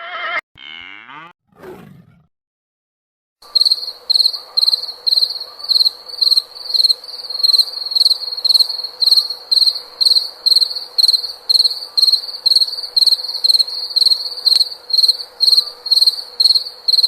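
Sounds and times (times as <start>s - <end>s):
cricket chirping: 3.4s - 17.0s.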